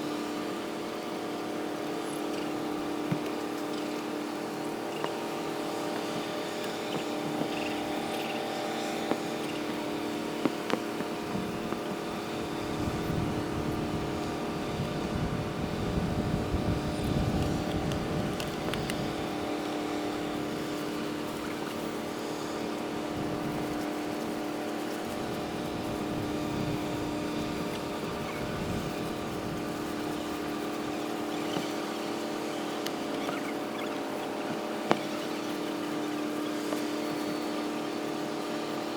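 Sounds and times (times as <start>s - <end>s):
wind rumble on microphone: 9.1s - 31.4s.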